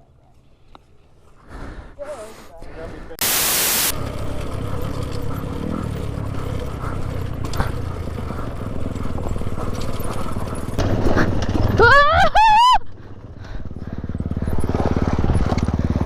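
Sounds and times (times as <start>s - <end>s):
dirt bike engines rumbling: 1.3s - 16.0s
loud burst of hiss: 3.2s - 3.9s.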